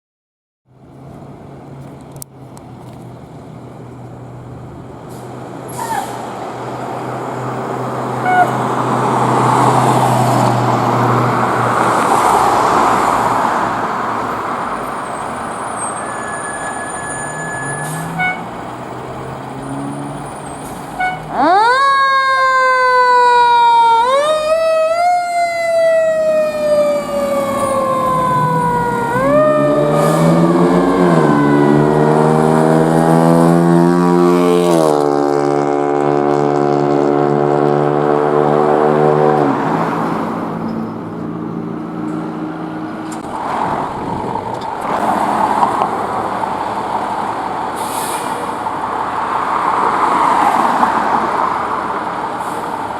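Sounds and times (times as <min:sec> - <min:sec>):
road noise: 0:00.6 - 0:52.9
truck engine: 0:00.7 - 0:52.9
fire truck siren wailing: 0:07.6 - 0:34.4
low steady horn tone: 0:08.2 - 0:08.6, 0:16.2 - 0:18.6, 0:21.0 - 0:21.3.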